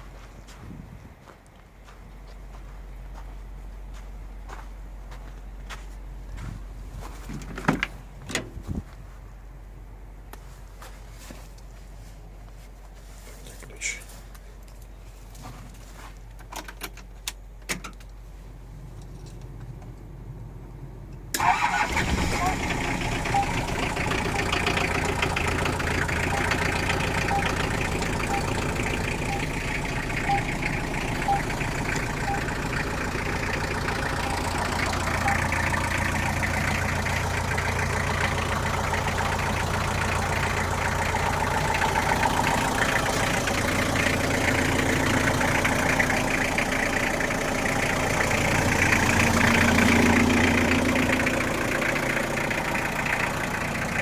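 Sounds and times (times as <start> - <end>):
car engine idling: 18.6 - 54.0.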